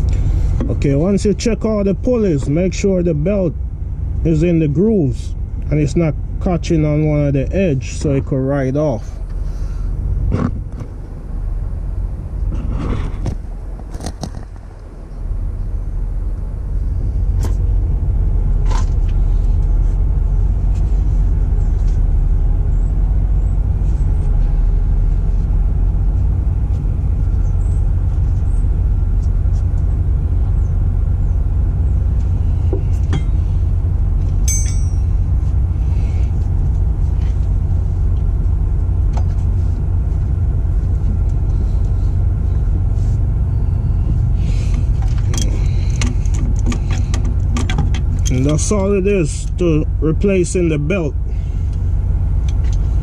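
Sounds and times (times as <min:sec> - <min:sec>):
diesel engine idling: 0:00.0 - 0:53.0
metallic jingle: 0:34.4 - 0:35.2.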